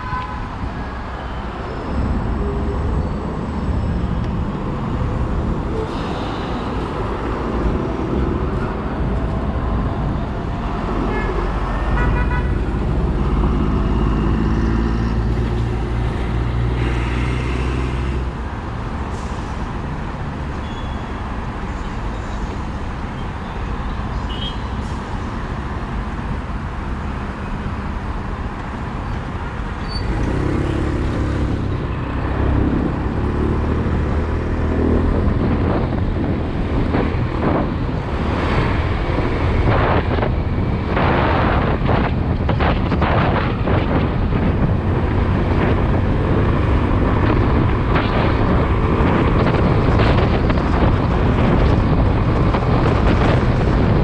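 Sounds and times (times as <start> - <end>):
wind buffeting microphone: 30.8 - 54.0.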